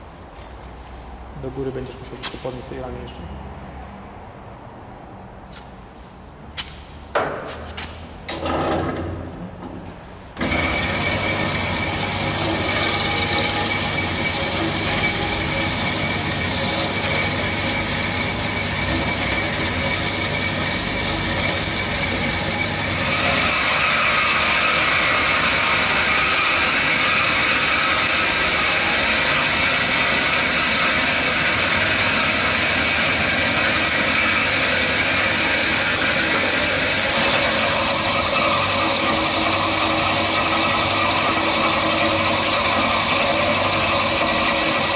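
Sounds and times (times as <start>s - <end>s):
knocks: 7.1s - 9.8s
band saw running: 10.4s - 44.9s.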